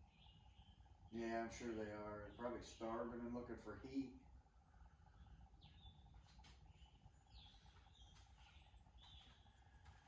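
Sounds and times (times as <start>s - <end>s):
faint bird chirps: 0.0s - 10.0s
low steady hum: 0.0s - 10.0s.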